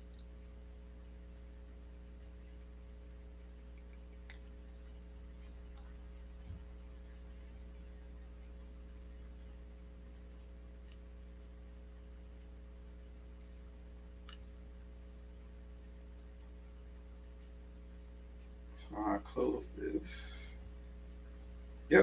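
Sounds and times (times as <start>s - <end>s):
low electrical hum: 0.0s - 22.0s
faint clicks: 14.2s - 14.5s.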